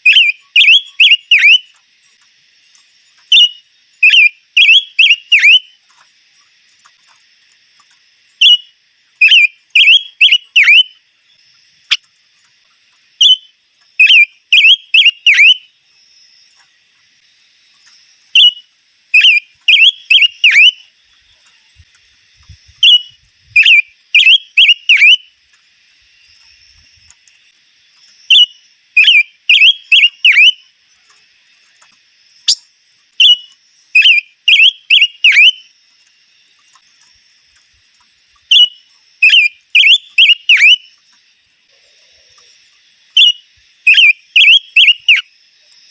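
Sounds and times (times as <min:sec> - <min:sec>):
songbird whistling phrases: 0:00.0 - 0:01.7, 0:03.3 - 0:05.7, 0:08.4 - 0:11.0, 0:13.2 - 0:15.7, 0:19.2 - 0:20.8, 0:22.8 - 0:25.3, 0:28.3 - 0:30.6, 0:33.2 - 0:35.6, 0:38.5 - 0:40.9, 0:43.2 - 0:45.2.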